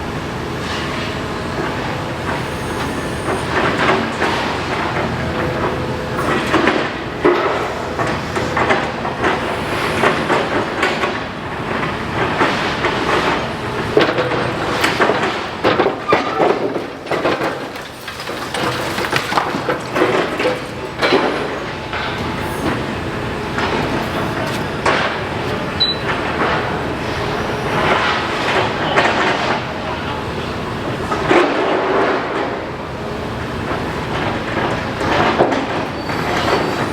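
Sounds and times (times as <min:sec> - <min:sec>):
excavator diesel engine: 0:00.0 - 0:31.3
clanks and crashes of debris: 0:12.2 - 0:22.9.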